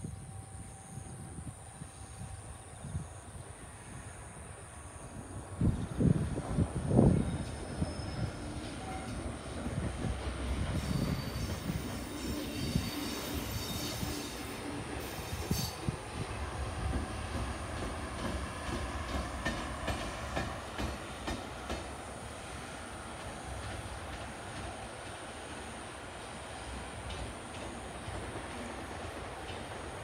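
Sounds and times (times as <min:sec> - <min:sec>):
train rumbling on rails: 0:00.0 - 0:30.0
faint high wheel squeal: 0:07.0 - 0:09.4, 0:10.5 - 0:15.9
wheels clacking over rail joints: 0:16.9 - 0:22.0.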